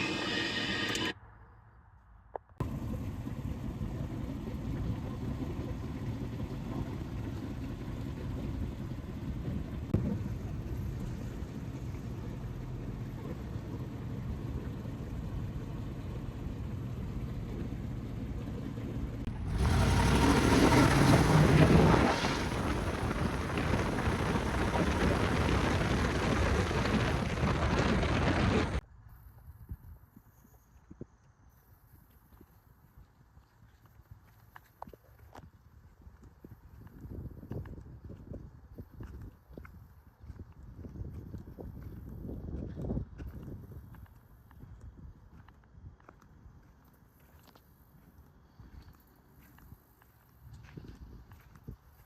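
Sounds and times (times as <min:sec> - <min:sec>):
truck engine running: 0:02.6 - 0:28.8.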